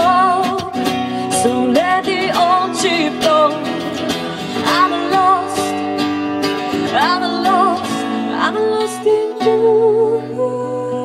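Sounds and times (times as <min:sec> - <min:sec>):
person singing with vibrato: 0:00.0 - 0:11.0
strummed acoustic guitar: 0:00.0 - 0:11.0.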